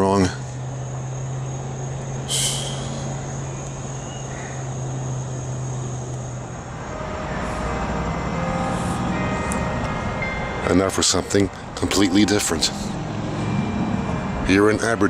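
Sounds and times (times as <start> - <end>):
freight train engine drone: 0.0 - 15.0
sharp high hiss: 1.6 - 6.8.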